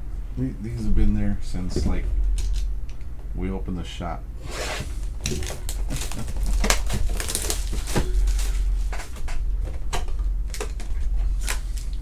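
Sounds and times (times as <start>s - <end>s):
steady low hum: 0.0s - 12.0s
cards and packaging crinkling: 5.0s - 12.0s.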